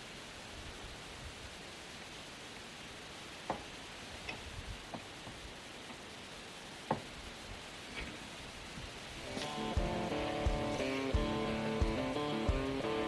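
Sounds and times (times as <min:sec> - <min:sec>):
steady hiss: 0:00.0 - 0:13.0
faint ticks: 0:03.4 - 0:06.0.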